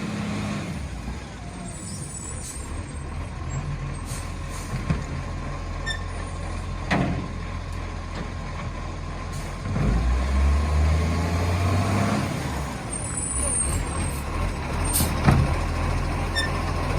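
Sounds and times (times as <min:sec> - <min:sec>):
engine revving up: 0:09.7 - 0:12.8
diesel engine running: 0:12.2 - 0:16.9.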